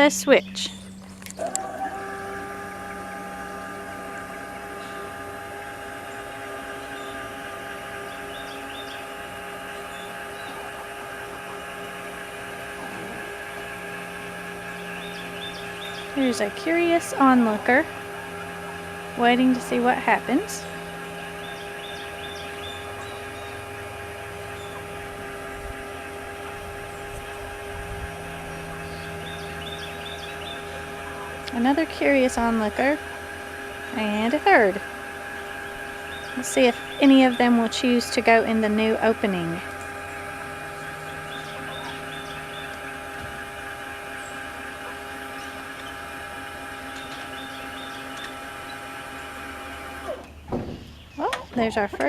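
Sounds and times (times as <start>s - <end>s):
steady hum of held tones: 0.0s - 52.0s.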